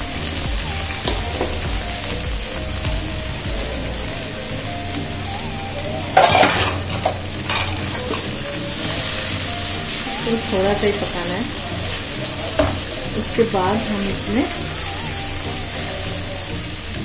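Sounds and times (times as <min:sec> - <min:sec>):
onions sizzling in oil: 0:00.0 - 0:17.0
utensil clattering: 0:06.1 - 0:09.0.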